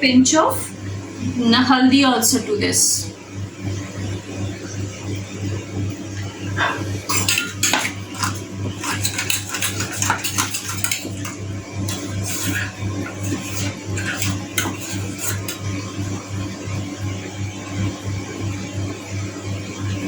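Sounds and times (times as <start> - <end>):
spoon clinking against bowl: 7.1 - 15.7.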